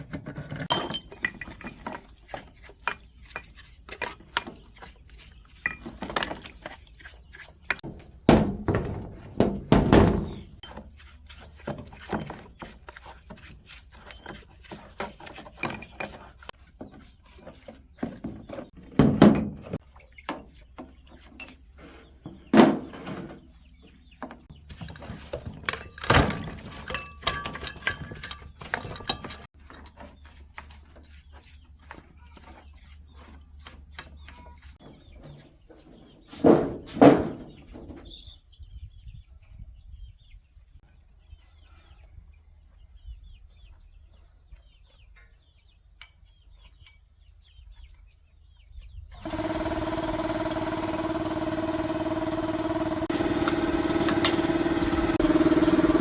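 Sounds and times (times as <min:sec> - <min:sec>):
metal parts and tools clicking: 0:00.0 - 0:10.8, 0:13.7 - 0:16.5, 0:24.7 - 0:30.2
loud thumps: 0:07.8 - 0:10.6, 0:36.4 - 0:38.0.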